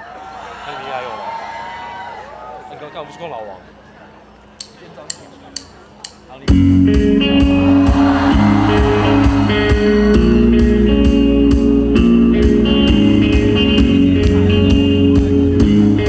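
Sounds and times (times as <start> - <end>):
electric guitar chords: 6.4 - 16.0
drums and cymbal hits: 6.5 - 15.9
bass guitar: 6.5 - 16.0.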